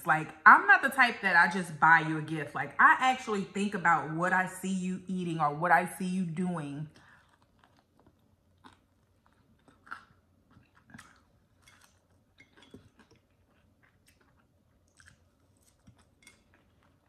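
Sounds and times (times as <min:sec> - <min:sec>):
chewing and nibbling: 0:06.9 - 0:17.0.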